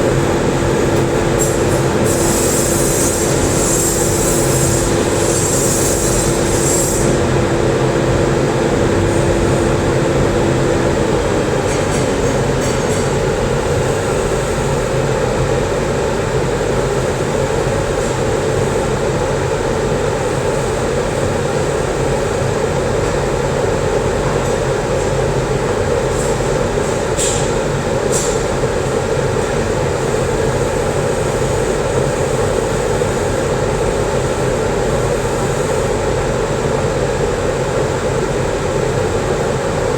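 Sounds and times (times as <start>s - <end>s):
welding equipment drone: 0.0s - 39.9s.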